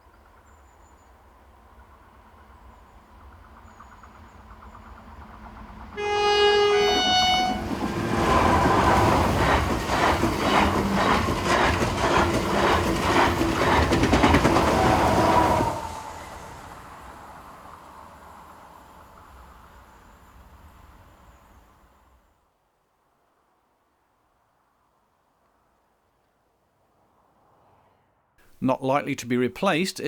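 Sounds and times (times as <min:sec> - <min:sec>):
train horn two-note: 0:06.0 - 0:07.8
train wheels clattering over rail joints: 0:07.7 - 0:15.4.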